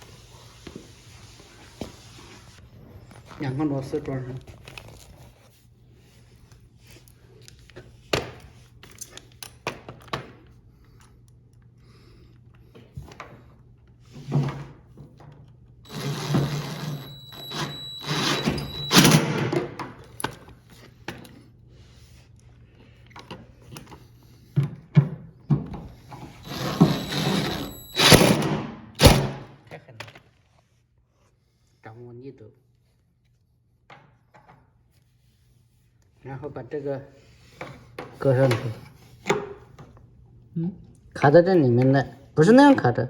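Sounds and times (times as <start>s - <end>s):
power screwdriver whining: 15.9s - 19.8s, 26.2s - 29.5s.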